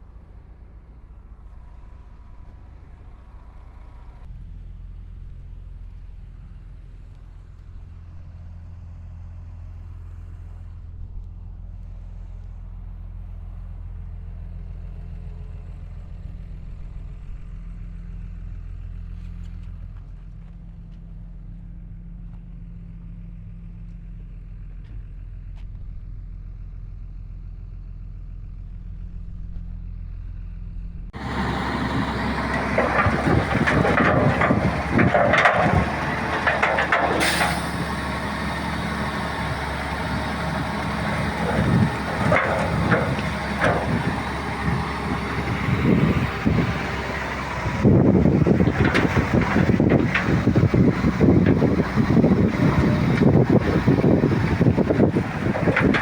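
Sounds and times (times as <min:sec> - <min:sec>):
bulldozer diesel engine running: 0:12.0 - 0:56.0
loud rough noise: 0:31.2 - 0:56.0.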